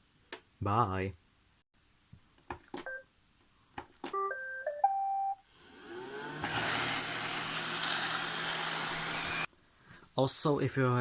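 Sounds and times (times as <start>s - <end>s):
robot vacuum motor whine: 5.4s - 9.5s.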